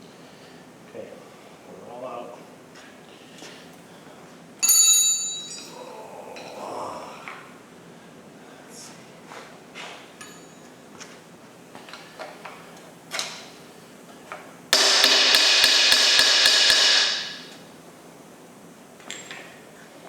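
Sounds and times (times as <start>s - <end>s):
light clinks of tools: 4.6s - 5.8s
hammer blows on metal: 14.8s - 17.6s.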